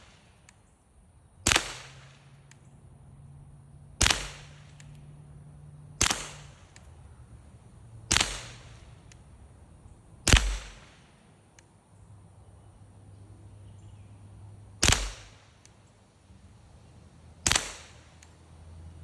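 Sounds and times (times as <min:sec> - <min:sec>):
pistol shots with echo: 0:01.4 - 0:02.5, 0:04.0 - 0:05.0, 0:06.0 - 0:06.9, 0:08.1 - 0:09.2, 0:10.2 - 0:11.3, 0:14.8 - 0:15.6, 0:17.4 - 0:18.3.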